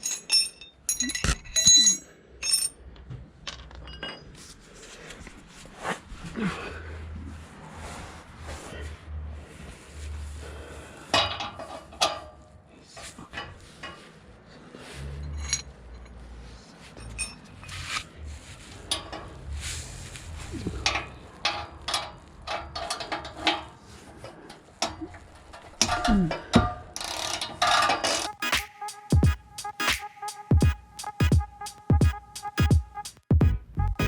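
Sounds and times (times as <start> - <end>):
metal tools clinking: 0.0 - 2.9, 3.5 - 4.4, 15.2 - 16.2, 17.0 - 17.7.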